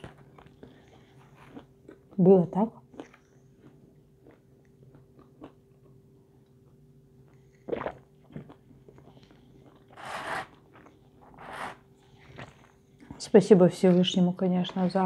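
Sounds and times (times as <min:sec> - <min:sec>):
woman chewing: 0:00.0 - 0:02.2, 0:02.8 - 0:06.6
faint steady hum: 0:00.0 - 0:15.0.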